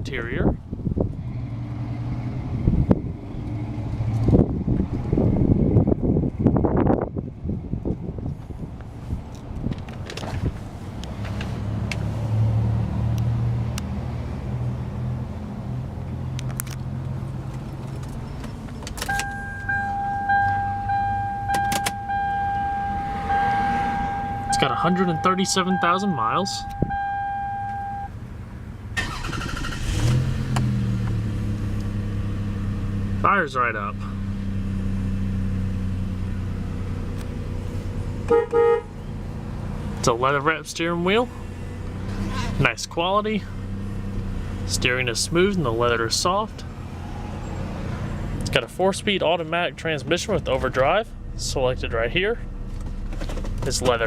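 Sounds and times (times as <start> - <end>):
car engine idling: 15.2 - 30.0, 30.6 - 54.0
high electronic warning tone: 19.1 - 28.1
car horn short toots: 38.3 - 39.0.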